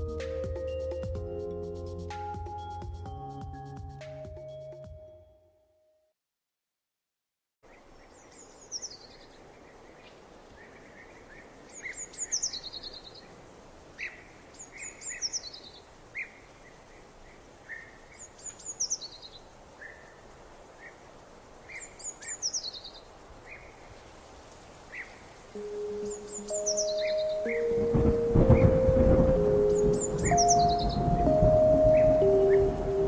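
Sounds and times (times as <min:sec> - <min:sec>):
outdoor hiss: 0:07.6 - 0:33.0
songbird singing falling phrase: 0:07.7 - 0:13.4, 0:24.9 - 0:33.0.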